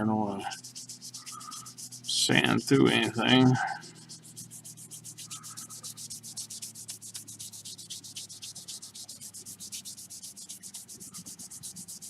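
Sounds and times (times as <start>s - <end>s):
wet sanding pad rubbing: 0.2s - 12.0s.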